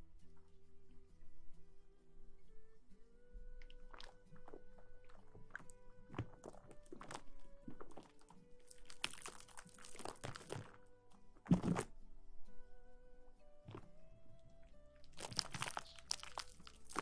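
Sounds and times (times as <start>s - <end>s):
soft background music: 0.0s - 17.0s
close-miked rustling and crinkling: 3.6s - 12.6s, 13.5s - 17.0s.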